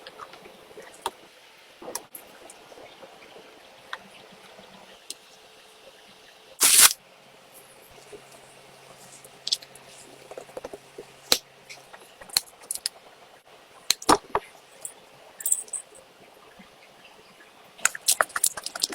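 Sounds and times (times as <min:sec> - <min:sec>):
miniature utensils clicking and tapping: 0:17.8 - 0:18.9.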